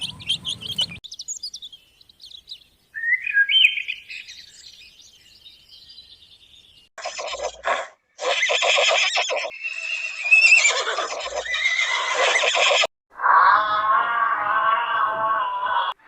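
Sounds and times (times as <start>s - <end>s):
horse whinnying: 7.0s - 16.0s.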